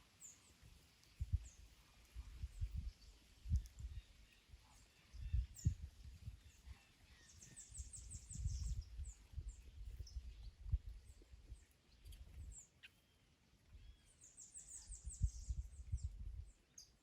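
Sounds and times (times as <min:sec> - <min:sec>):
small birds chirping: 0:00.0 - 0:17.0
wind gusting on microphone: 0:01.2 - 0:04.2, 0:05.1 - 0:12.6, 0:14.8 - 0:16.6.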